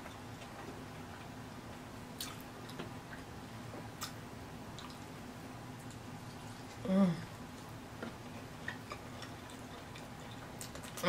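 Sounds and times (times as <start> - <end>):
faint steady hum: 0.0 - 11.0
wet chewing: 8.6 - 11.0.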